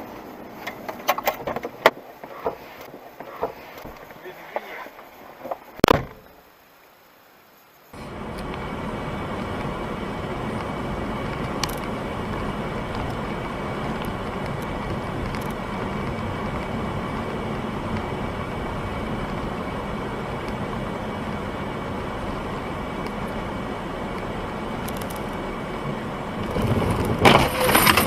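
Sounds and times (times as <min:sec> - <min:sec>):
car driving road noise: 0:00.0 - 0:06.4, 0:07.9 - 0:28.0.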